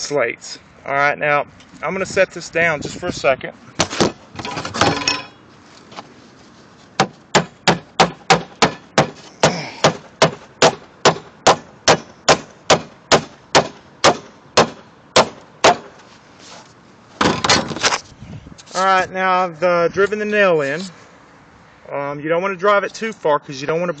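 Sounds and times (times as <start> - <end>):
hammer driving a nail: 7.0 - 15.9.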